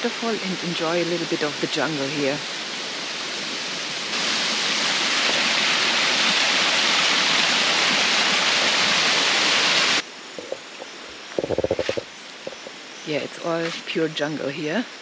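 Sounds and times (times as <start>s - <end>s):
small waterfall pouring: 2.5s - 10.0s.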